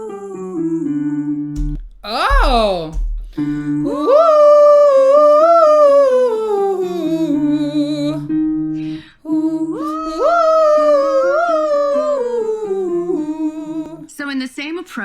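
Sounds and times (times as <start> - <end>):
person singing descending scale: 2.0 - 3.0.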